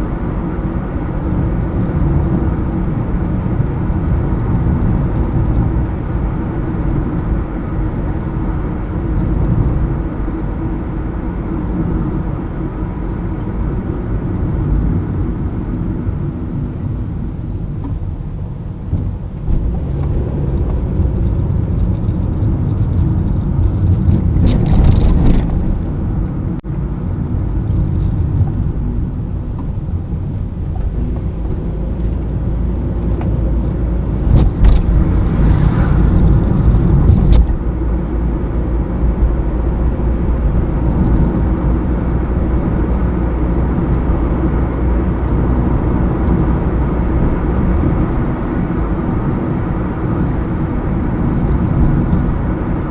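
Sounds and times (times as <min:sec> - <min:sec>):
car engine and road noise: 0:00.0 - 0:52.9
passing vehicle rushes: 0:19.1 - 0:52.9.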